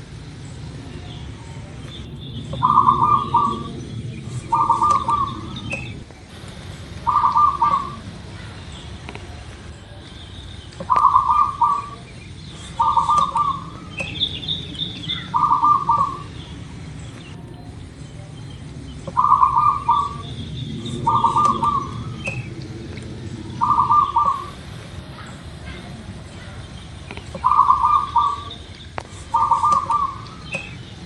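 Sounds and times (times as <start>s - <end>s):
bird chirps: 0.3s - 6.1s, 7.0s - 31.0s
dove cooing: 0.3s - 10.0s, 10.8s - 30.9s.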